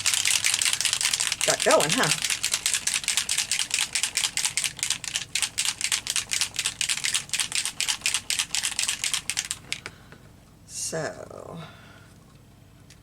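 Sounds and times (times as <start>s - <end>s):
spray bottle rattling when shaken: 0.0s - 9.8s.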